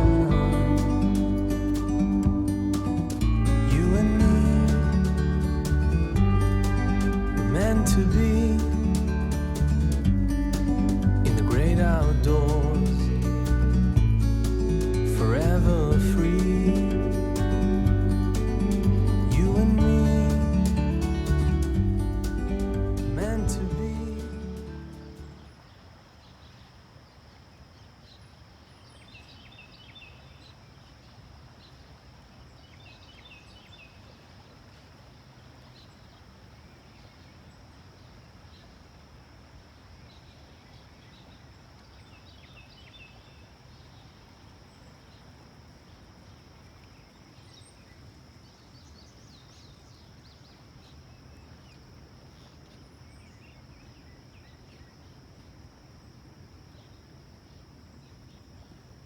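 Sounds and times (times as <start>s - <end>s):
low background rumble: 0.0s - 25.5s
insects droning: 0.0s - 59.0s
bird chirping: 27.8s - 31.8s, 32.4s - 34.3s, 40.0s - 55.6s.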